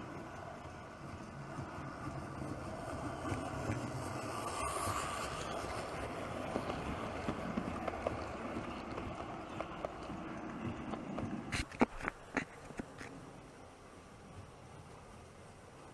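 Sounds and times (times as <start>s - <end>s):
model train motor rumble: 0.0s - 10.4s.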